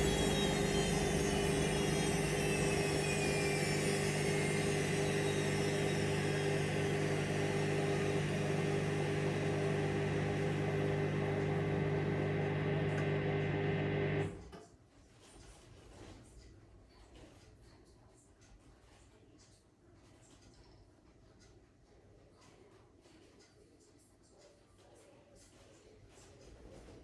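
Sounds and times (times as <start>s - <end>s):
washing machine motor hum: 0.0s - 14.5s.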